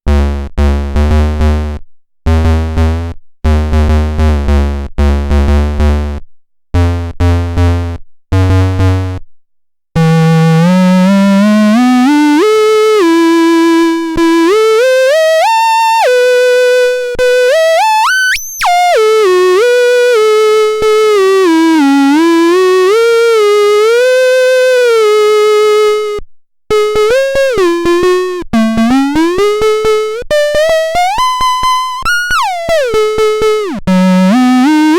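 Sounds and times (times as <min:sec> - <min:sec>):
synthesizer notes: 0:26.7 - 0:34.9.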